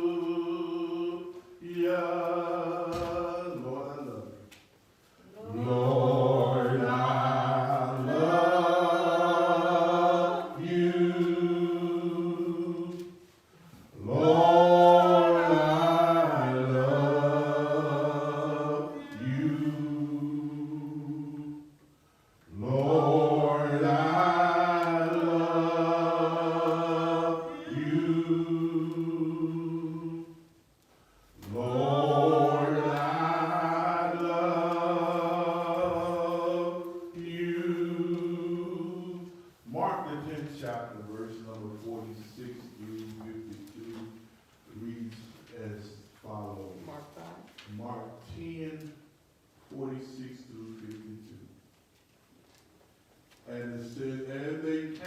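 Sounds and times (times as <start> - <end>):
man singing unaccompanied: 0.0 - 4.5.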